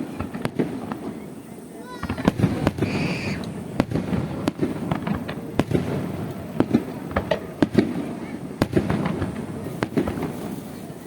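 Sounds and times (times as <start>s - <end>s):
fireworks bursting: 0.0s - 11.0s
high firework whistle: 1.7s - 4.1s.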